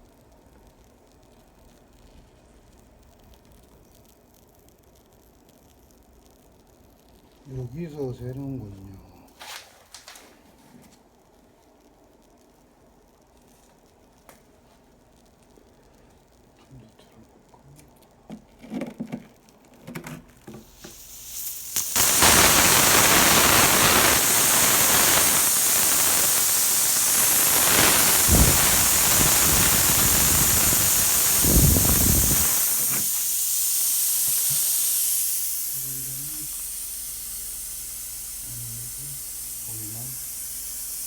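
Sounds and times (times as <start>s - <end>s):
small handling noises: 8.7s - 11.9s, 13.2s - 21.0s
pressurised gas hissing: 20.4s - 41.0s.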